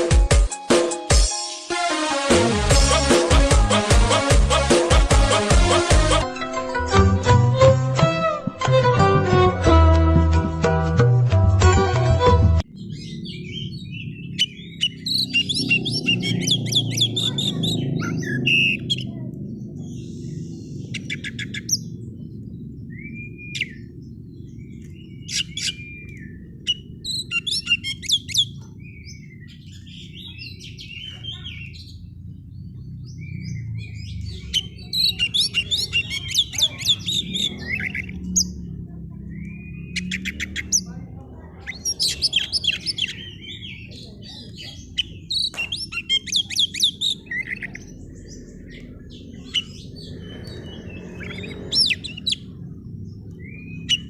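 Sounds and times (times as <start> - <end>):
songbird chattering trills and whistles: 12.7 - 38.6, 39.2 - 40.9, 41.6 - 52.6, 53.2 - 54.0.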